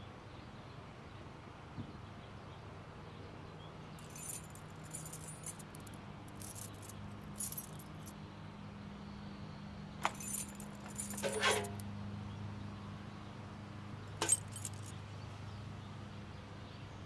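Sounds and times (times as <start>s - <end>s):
keys jangling: 4.0s - 8.1s, 10.0s - 11.8s, 14.2s - 14.9s.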